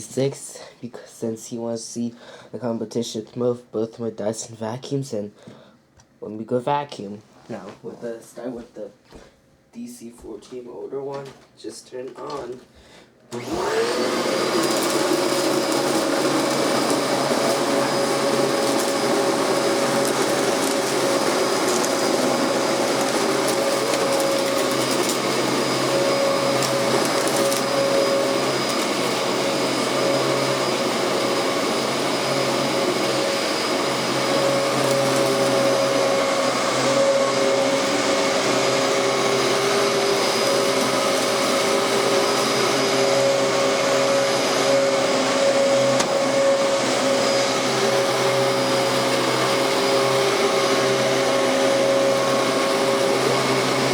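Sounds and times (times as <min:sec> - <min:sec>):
vacuum cleaner motor running: 0:13.3 - 0:53.9.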